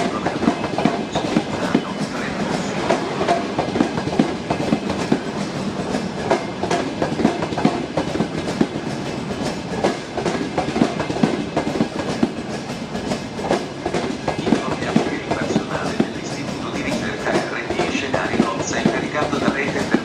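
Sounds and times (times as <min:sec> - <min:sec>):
train wheels clattering on rails: 0:00.0 - 0:20.0.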